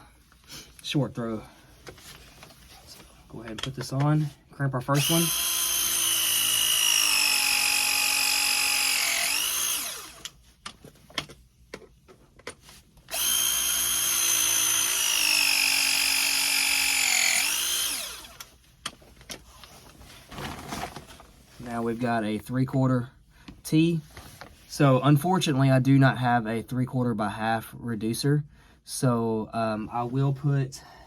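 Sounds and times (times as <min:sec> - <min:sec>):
press tool motor whine: 0:05.0 - 0:10.3, 0:13.1 - 0:18.4.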